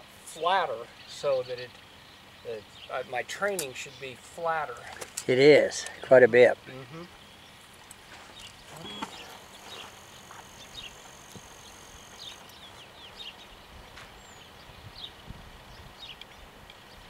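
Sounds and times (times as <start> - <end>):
small birds chirping: 0.2 - 17.0
thin high tone: 8.7 - 12.5
wind rumble on microphone: 13.4 - 17.0.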